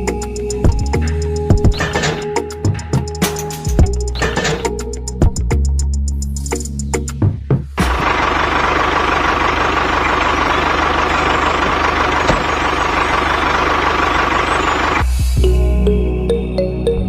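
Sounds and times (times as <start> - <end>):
tractor engine chugging: 7.8 - 15.4.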